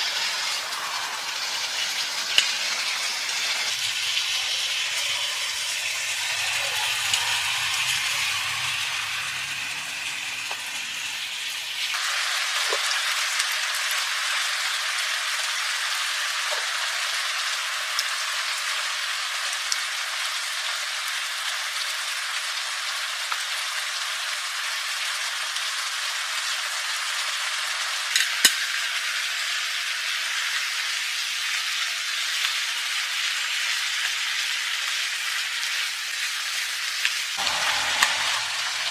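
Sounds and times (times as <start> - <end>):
low hum: 0.0 - 11.9, 37.4 - 38.9
food sizzling in a pan: 0.0 - 38.9.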